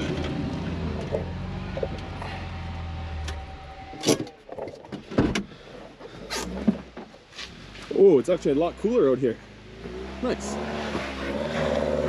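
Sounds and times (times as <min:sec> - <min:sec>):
vehicle engine idling: 0:00.0 - 0:10.6
car door clunks and clicks: 0:04.0 - 0:05.6.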